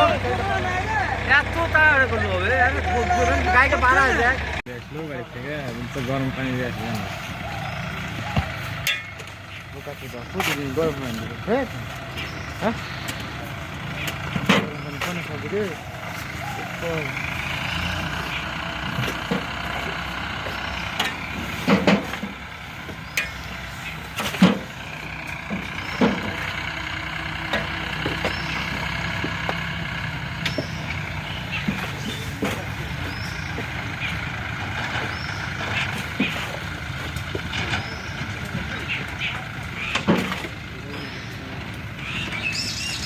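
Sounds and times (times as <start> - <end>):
diesel tractor engine running: 0.0 - 43.0
sharp knocks and clanks: 8.3 - 9.5, 14.0 - 15.4, 18.9 - 26.6, 27.5 - 29.8, 30.4 - 40.6.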